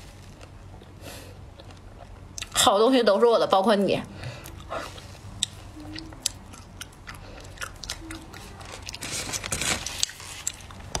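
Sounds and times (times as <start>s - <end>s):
person chewing ice cream crunches: 4.4s - 11.0s.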